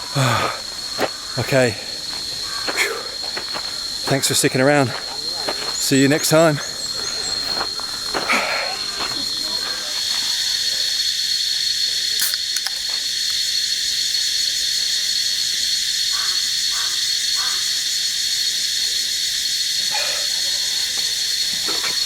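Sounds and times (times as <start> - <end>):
insect chorus: 0.0 - 22.0.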